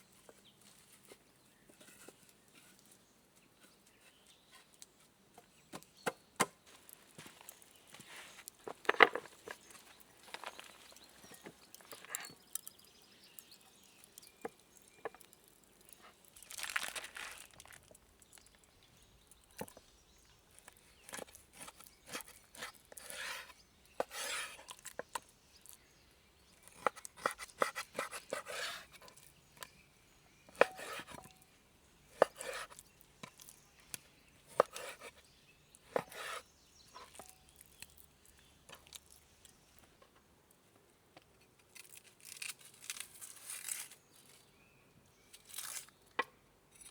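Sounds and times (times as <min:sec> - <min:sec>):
rustling and crinkling: 0:00.0 - 0:05.7, 0:06.6 - 0:25.9, 0:41.2 - 0:44.6, 0:45.3 - 0:46.2.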